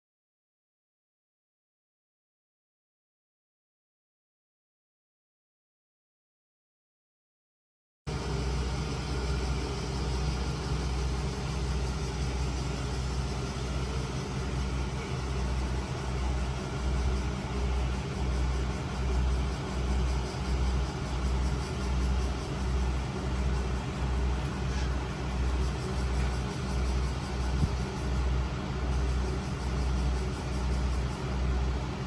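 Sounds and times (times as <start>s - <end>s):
diesel engine idling: 8.1s - 32.0s.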